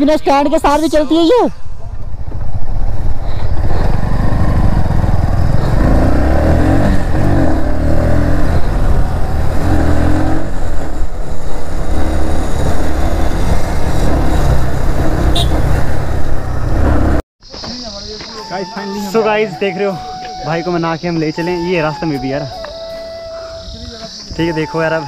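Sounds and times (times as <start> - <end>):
motorcycle engine running: 1.6 - 17.2.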